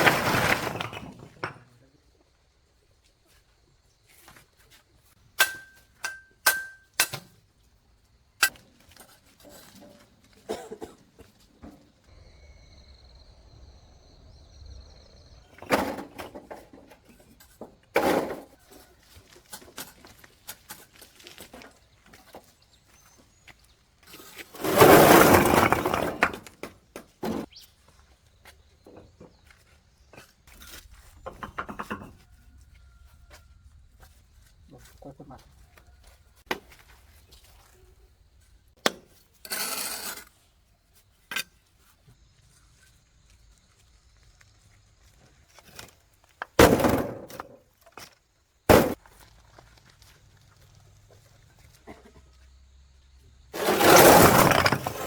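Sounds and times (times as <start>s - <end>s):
knocks and scraping: 0.0s - 1.8s, 8.4s - 12.0s, 15.4s - 22.6s, 24.0s - 27.6s, 28.8s - 32.7s, 45.6s - 49.9s, 53.5s - 55.0s.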